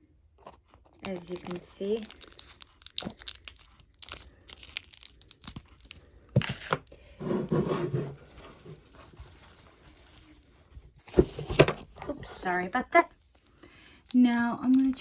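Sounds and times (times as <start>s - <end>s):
foil packet crinkling and tearing: 0.1s - 7.2s, 13.1s - 15.0s.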